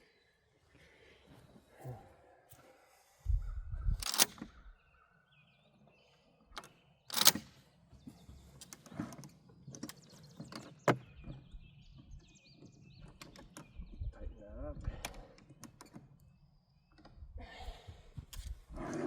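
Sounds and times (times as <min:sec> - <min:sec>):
birds chirping faintly: 0:00.0 - 0:19.0
gun handling clicks and knocks: 0:04.0 - 0:04.6, 0:06.5 - 0:11.4.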